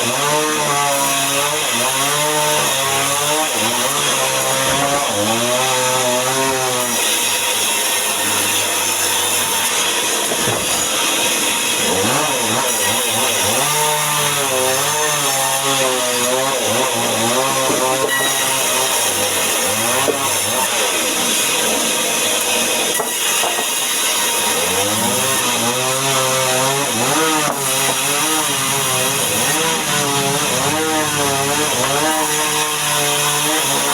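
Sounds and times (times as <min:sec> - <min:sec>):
chainsaw cutting timber: 0:00.0 - 0:33.9.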